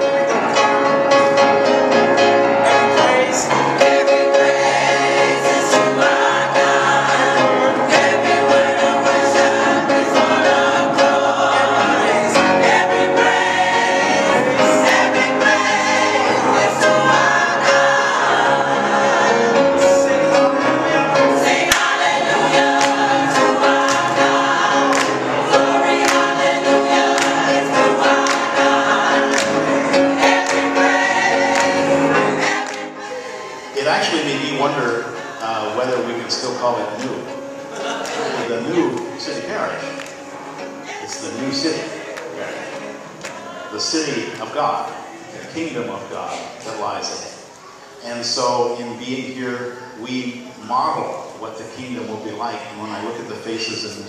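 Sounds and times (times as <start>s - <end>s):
instrumental backing: 0.0s - 45.3s
gospel choir singing: 0.0s - 54.0s.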